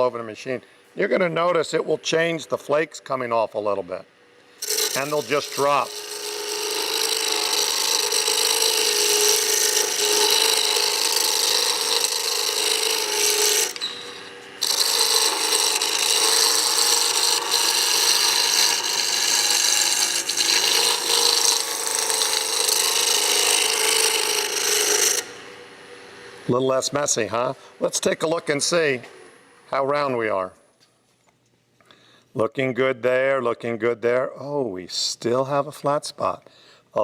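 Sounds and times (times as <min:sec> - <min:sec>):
chisel scraping wood on lathe: 0:04.6 - 0:25.4
lathe humming: 0:04.6 - 0:29.9.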